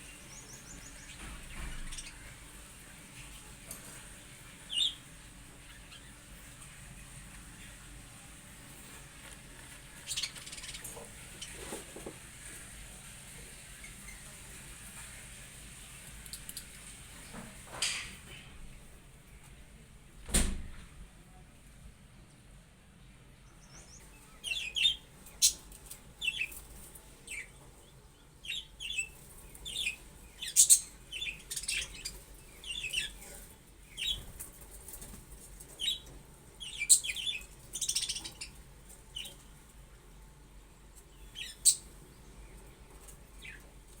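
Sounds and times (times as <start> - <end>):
budgerigars chirping: 28.4 - 33.2, 35.8 - 38.6, 41.3 - 41.9.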